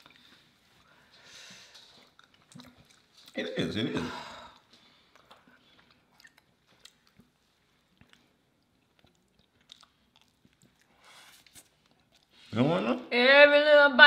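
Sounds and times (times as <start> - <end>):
soft breath: 0.0 - 2.0
faint chewing mouth clicks: 1.6 - 3.4, 4.6 - 12.4.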